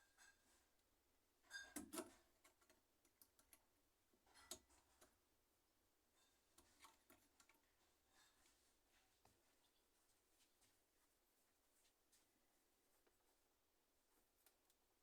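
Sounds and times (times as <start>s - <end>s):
faint clicks and taps: 1.8s - 5.2s.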